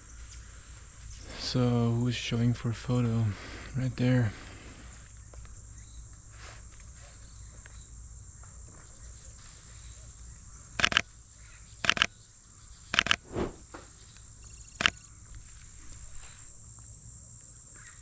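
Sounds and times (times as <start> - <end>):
high-pitched insect drone: 14.4 - 15.1.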